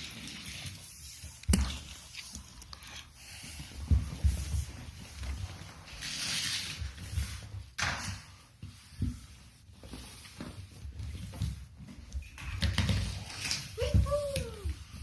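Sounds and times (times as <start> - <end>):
toy cars and track clattering: 0.0 - 0.8.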